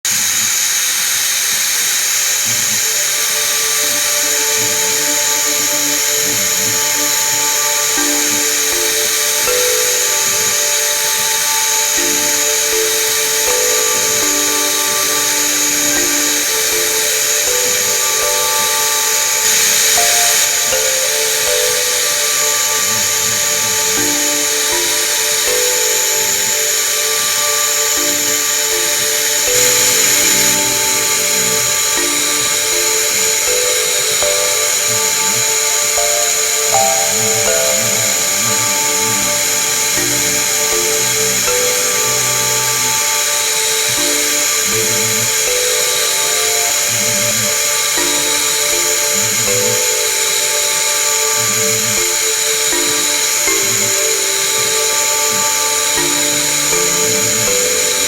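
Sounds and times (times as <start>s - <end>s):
spindle high whine and hiss: 0.1s - 58.0s
stepper motors humming: 0.1s - 58.0s.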